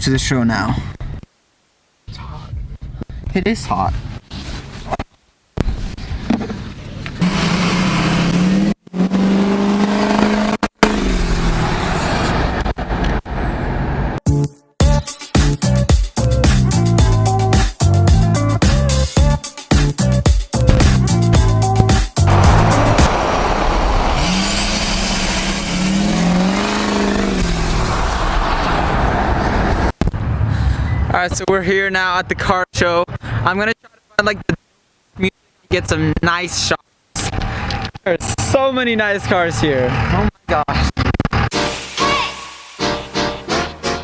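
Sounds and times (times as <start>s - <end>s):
road and wind noise: 5.6s - 14.2s, 21.8s - 31.2s
vehicle engine running: 7.2s - 12.2s, 22.3s - 29.6s.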